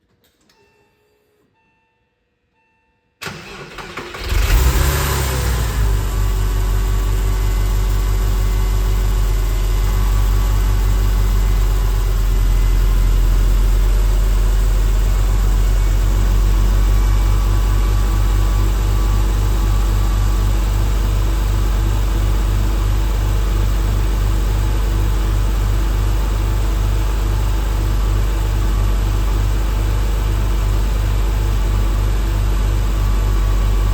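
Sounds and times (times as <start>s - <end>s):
car engine revving and idling: 4.1s - 24.2s.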